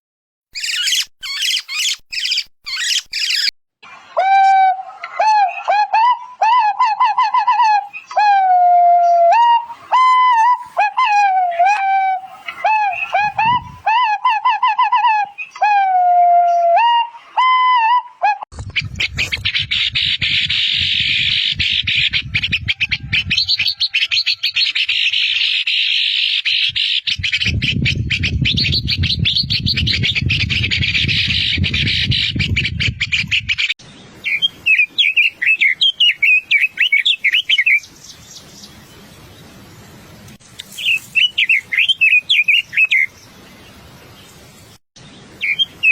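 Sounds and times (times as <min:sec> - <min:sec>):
bird warbling trills: 0:00.6 - 0:03.5, 0:40.7 - 0:43.2
bird whistled notes: 0:00.6 - 0:03.5, 0:34.2 - 0:37.9, 0:40.7 - 0:43.1, 0:45.4 - 0:45.9
harsh bird chatter: 0:00.6 - 0:03.5, 0:40.7 - 0:43.1.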